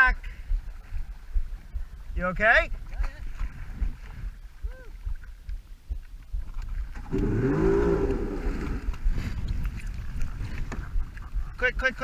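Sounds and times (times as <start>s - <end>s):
wind and water rumble: 0.0s - 12.0s
watercraft engine revving: 6.9s - 9.1s.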